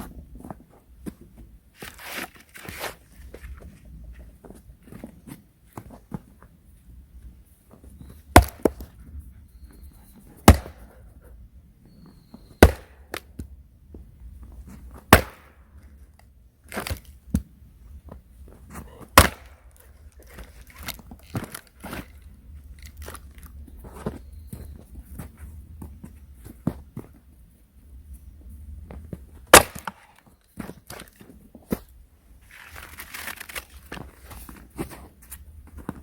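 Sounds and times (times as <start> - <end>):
heavy blows striking wood: 8.3 - 8.9, 10.4 - 10.8, 12.6 - 13.0, 15.1 - 15.6, 19.1 - 19.6, 29.5 - 30.0.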